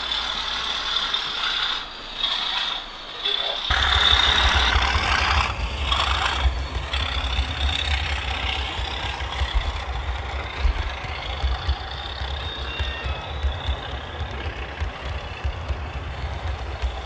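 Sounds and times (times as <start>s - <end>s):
model train wheels rumbling on track: 0.0s - 17.0s
diesel engine sound from small speaker: 3.1s - 17.0s.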